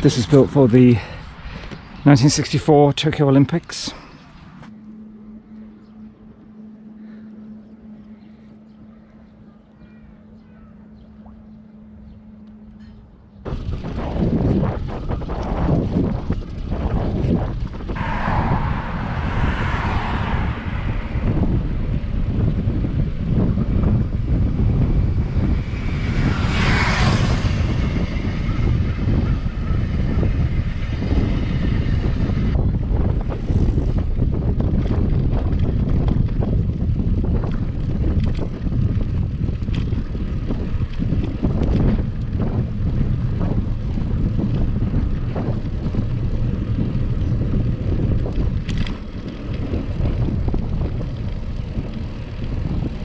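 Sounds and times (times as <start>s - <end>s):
wind buffeting microphone: 13.4s - 53.0s.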